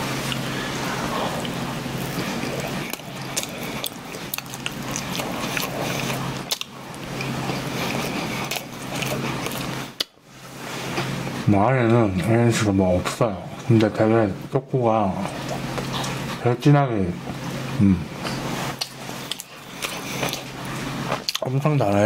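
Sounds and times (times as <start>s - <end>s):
person chewing: 0.0s - 10.2s, 15.2s - 16.4s, 18.2s - 21.6s
steady low hum: 0.0s - 22.0s.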